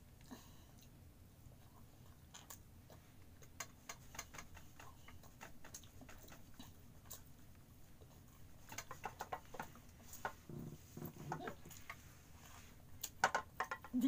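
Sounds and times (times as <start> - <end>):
person chewing and lip smacking: 1.6 - 8.8.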